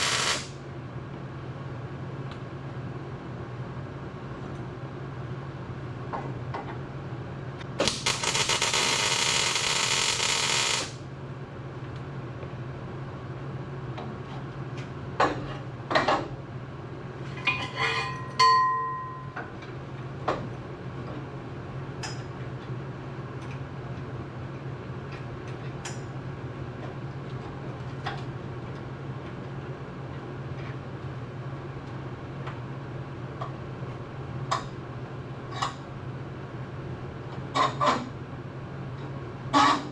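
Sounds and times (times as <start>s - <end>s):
angle grinder running: 0.0s - 0.5s
steady low hum: 0.0s - 39.6s.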